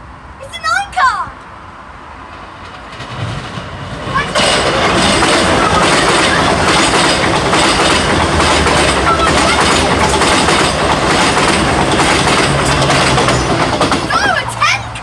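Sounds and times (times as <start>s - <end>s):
train rushing past: 0.0s - 15.0s
wheels clacking over rail joints: 2.2s - 15.0s.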